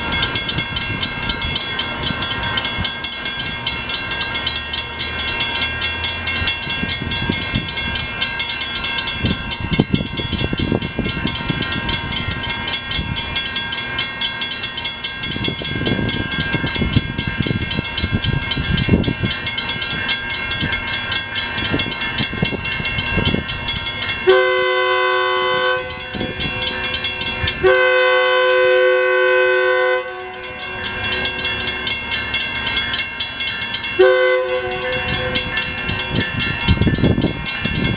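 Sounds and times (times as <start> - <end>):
railroad crossing bells ringing: 0.0 - 37.9
train rumble: 0.0 - 37.9
train horn blasts: 24.2 - 26.4, 27.4 - 30.8, 34.0 - 35.7.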